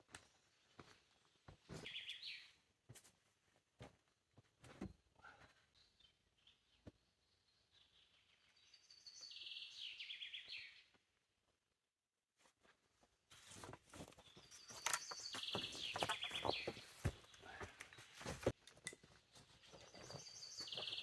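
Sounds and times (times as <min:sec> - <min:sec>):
songbird singing with trill: 0:07.2 - 0:10.8.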